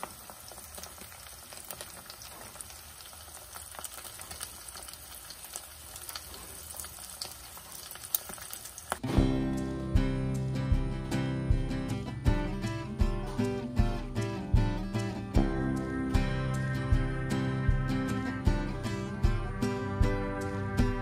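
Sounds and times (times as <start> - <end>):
small pops and crackles: 0.0 - 9.1
food sizzling in oil: 0.0 - 9.2
guitar music: 9.0 - 21.0.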